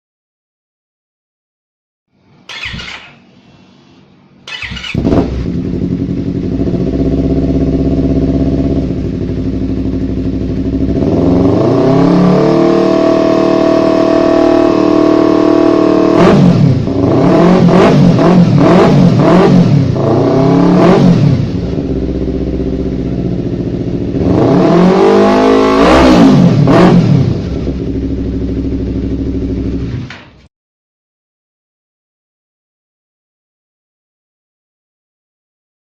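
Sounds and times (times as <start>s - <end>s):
motorcycle engine revving: 2.5s - 30.1s.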